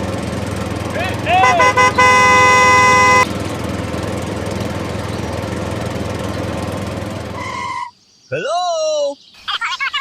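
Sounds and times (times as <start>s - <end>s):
horn toot: 1.2s - 3.3s.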